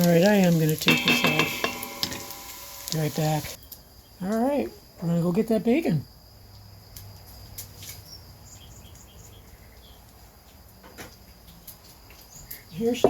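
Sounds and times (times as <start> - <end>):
small high chirps: 0.8 - 3.6.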